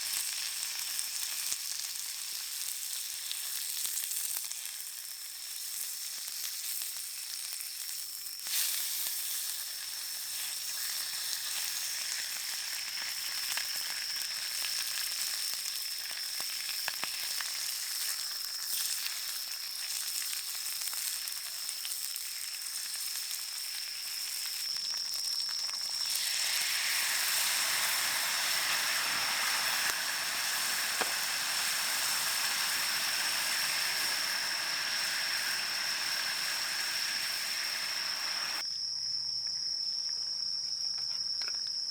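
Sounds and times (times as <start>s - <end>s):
food sizzling on griddle: 0.0s - 38.6s
cicada chorus: 23.4s - 41.9s.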